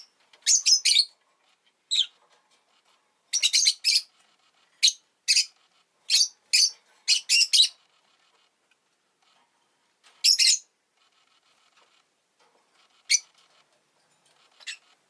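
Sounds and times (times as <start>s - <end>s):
lovebird high chirps: 0.0s - 1.1s, 1.9s - 2.2s, 3.3s - 4.1s, 4.8s - 7.9s, 10.2s - 10.7s, 13.0s - 13.4s, 14.5s - 15.0s.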